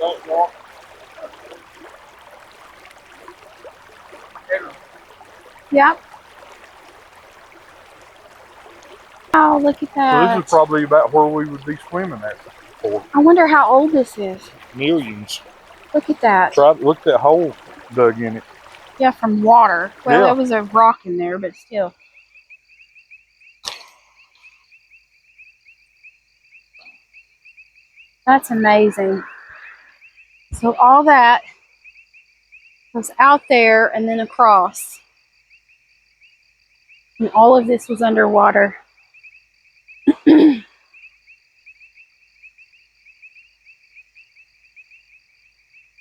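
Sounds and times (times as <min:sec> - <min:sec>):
crickets chirping: 0:00.0 - 0:46.0
voice burst: 0:04.5 - 0:04.8, 0:09.4 - 0:15.4, 0:16.0 - 0:18.4, 0:19.0 - 0:20.9, 0:28.4 - 0:29.9.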